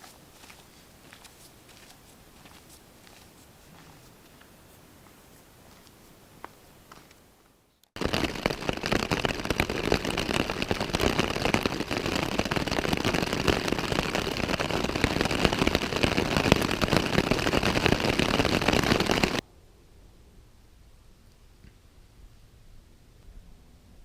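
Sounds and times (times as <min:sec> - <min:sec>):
bicycle tyres on gravel: 0:08.0 - 0:19.4.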